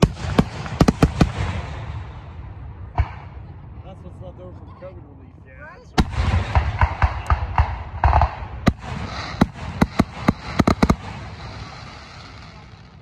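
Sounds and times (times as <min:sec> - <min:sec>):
fireworks bangs: 0:00.0 - 0:03.5, 0:06.0 - 0:13.0
fireworks crackle: 0:06.0 - 0:13.0.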